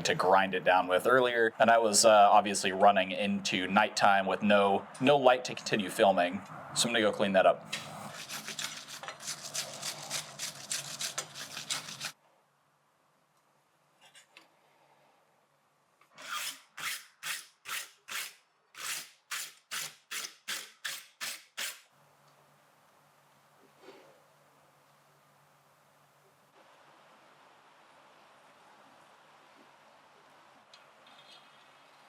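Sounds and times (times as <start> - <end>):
hand file rasping on steel rod: 8.0 - 12.2.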